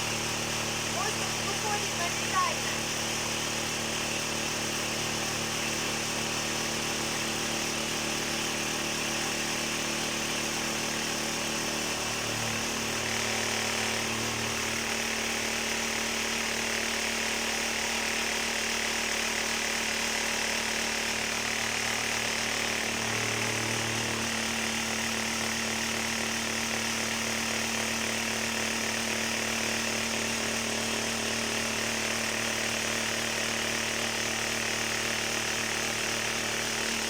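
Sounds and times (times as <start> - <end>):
electric machine humming: 0.0 - 7.2, 10.0 - 15.3.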